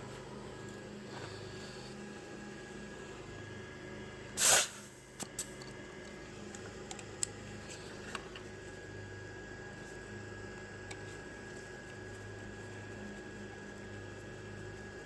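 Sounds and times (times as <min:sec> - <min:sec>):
loud hiss of air: 0:04.4 - 0:05.0.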